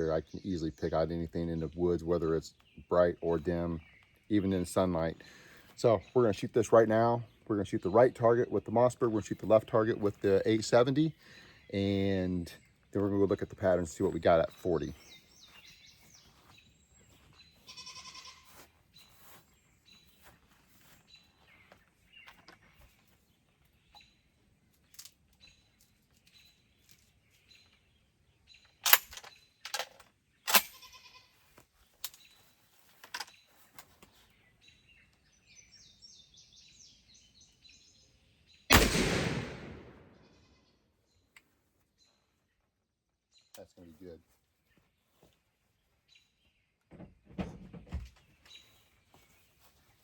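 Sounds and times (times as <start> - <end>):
sharp clicks: 38.7 - 40.1
shotgun shot echoing: 38.7 - 40.3.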